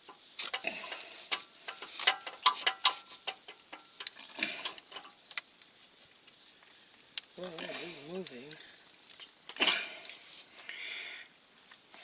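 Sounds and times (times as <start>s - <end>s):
oil filter wrench clicking metal: 0.4s - 5.4s.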